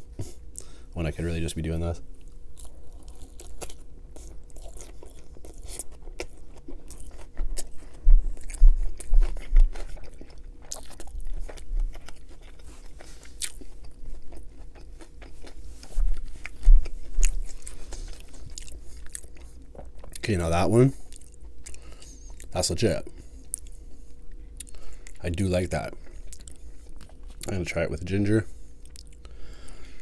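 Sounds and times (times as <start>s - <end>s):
crunchy chewing: 2.2s - 27.7s
dull low chewing thumps: 6.1s - 20.2s.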